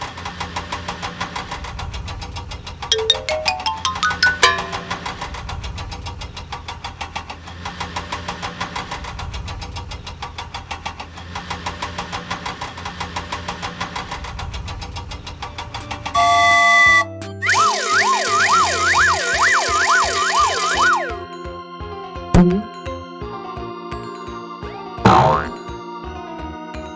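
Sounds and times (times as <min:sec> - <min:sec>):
horn honk: 0:16.2 - 0:17.0.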